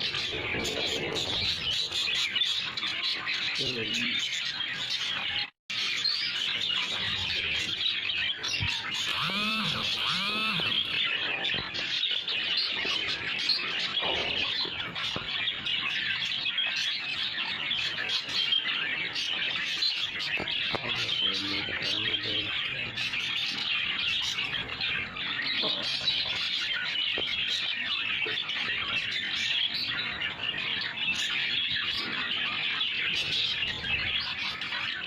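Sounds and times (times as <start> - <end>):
budgerigars chattering and chirping: 0.0 - 35.0.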